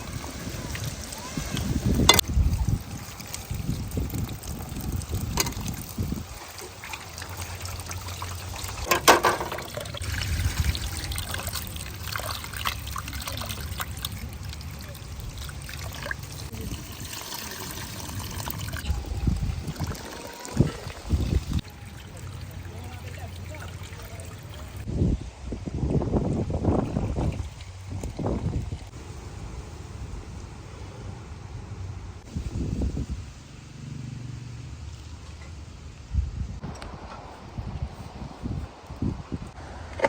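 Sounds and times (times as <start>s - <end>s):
liquid trickling and pouring: 0.0s - 24.9s, 26.2s - 30.1s.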